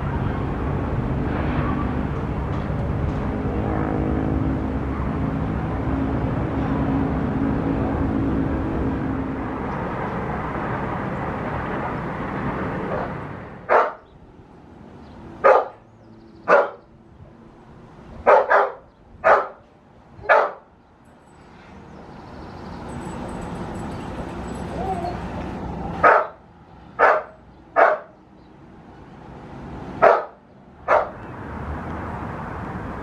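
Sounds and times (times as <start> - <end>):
dog barking: 13.7 - 14.0, 15.4 - 15.8, 16.5 - 16.8, 18.2 - 19.6, 20.2 - 20.7, 26.0 - 26.4, 27.0 - 28.1, 30.0 - 31.2.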